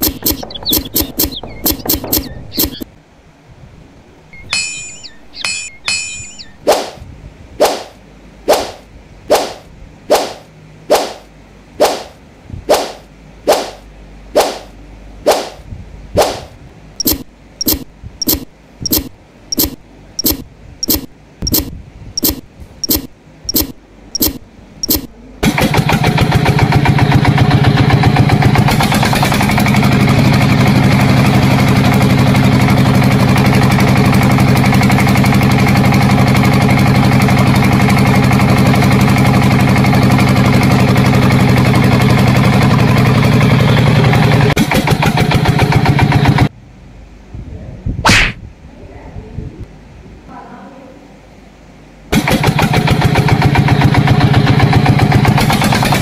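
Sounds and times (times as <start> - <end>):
small tractor engine running: 0.0 - 2.9, 17.0 - 46.5, 52.1 - 56.0.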